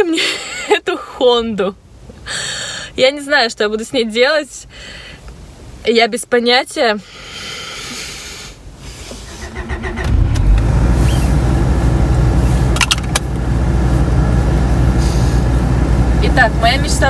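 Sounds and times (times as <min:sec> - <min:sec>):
car engine cranking and idling: 0:09.0 - 0:17.0.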